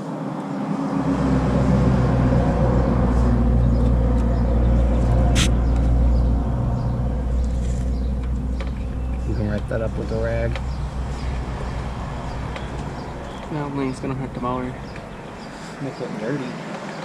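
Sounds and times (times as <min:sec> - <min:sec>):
sharp click: 0:05.4 - 0:05.6.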